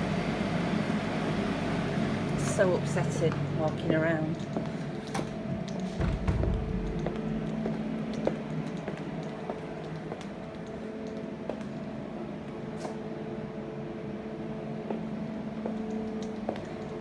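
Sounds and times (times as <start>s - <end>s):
dehumidifiers humming: 0.0s - 17.0s.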